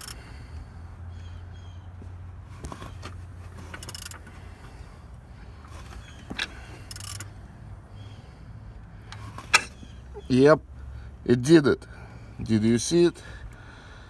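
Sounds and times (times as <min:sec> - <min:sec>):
metallic wrench clicks: 0:00.0 - 0:00.2, 0:03.7 - 0:04.2, 0:06.4 - 0:07.3.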